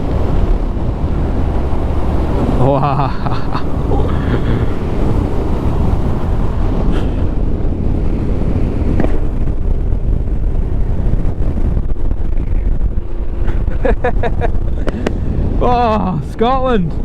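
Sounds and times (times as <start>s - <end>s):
motorcycle engine running: 0.0s - 15.9s
wind rush on microphone: 0.0s - 17.0s.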